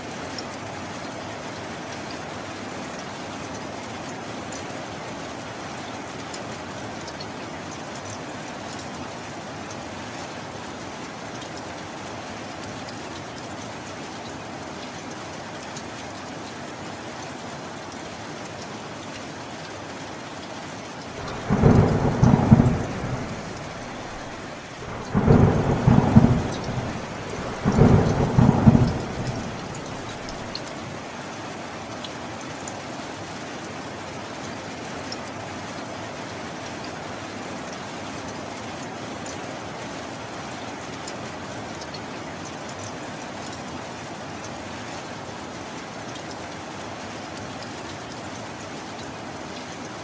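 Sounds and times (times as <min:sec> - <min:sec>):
steady rain falling: 0:00.0 - 0:50.0
thunder rumbles: 0:21.1 - 0:30.6.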